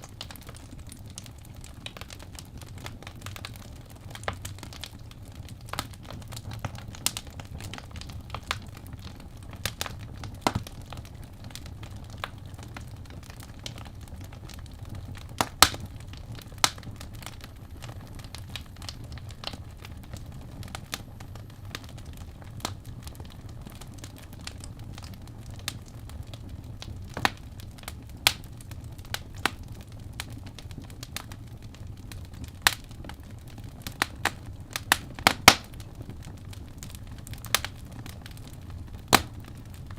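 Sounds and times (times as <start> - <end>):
fire rumbling: 0.0 - 39.9
logs crackling and popping: 0.0 - 39.9.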